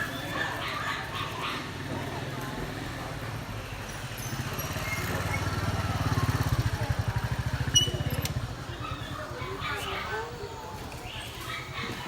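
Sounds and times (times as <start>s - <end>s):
small engine running: 4.2s - 8.6s.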